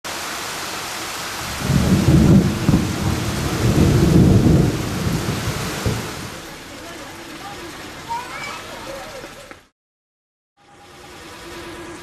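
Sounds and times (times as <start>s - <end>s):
steady rain hissing: 0.1s - 9.7s, 10.6s - 12.0s
rolling thunder rumble: 1.4s - 6.5s.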